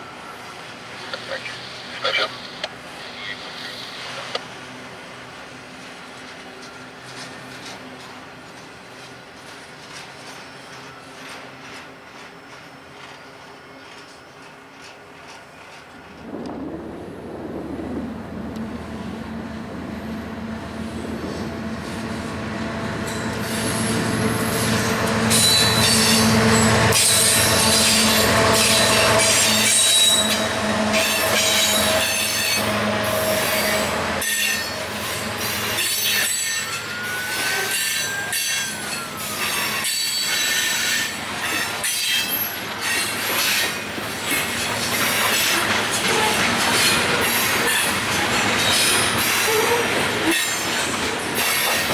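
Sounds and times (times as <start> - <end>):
diesel locomotive engines: 0.0 - 51.9
train cars clattering: 5.6 - 51.9
wheels squealing: 20.0 - 51.9.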